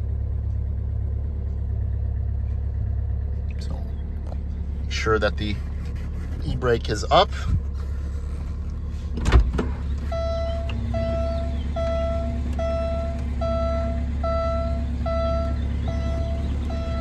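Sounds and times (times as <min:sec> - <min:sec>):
car engine idling: 0:00.0 - 0:17.0
car warning chime beeping: 0:10.1 - 0:17.0.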